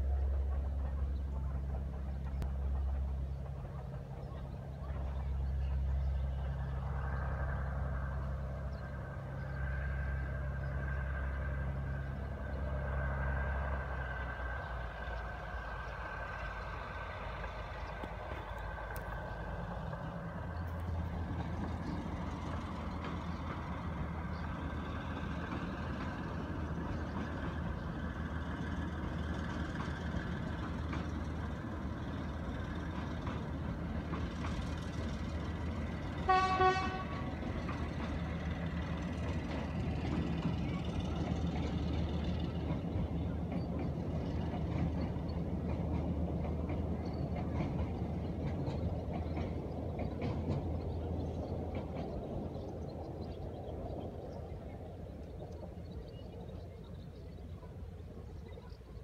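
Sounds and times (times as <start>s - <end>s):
diesel train engine drone: 0.0s - 59.0s
train horn toot: 36.1s - 37.4s.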